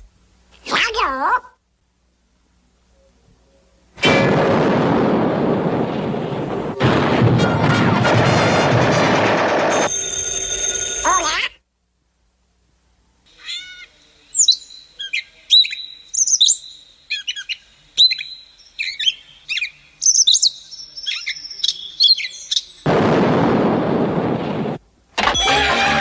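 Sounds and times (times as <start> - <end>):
bird song: 13.3 - 22.9.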